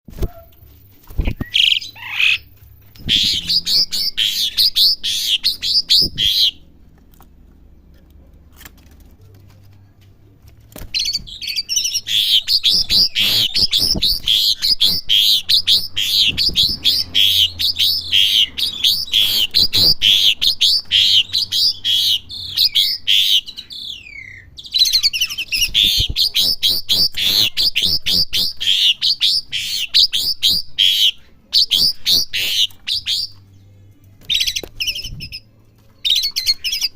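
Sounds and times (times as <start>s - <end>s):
starling singing: 1.3s - 6.7s, 11.0s - 33.4s, 34.2s - 36.9s.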